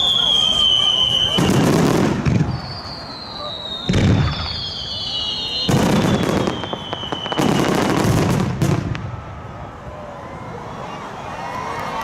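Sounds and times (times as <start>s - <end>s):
high falling whistle: 0.0s - 8.0s
fireworks booming and crackling: 0.0s - 9.6s.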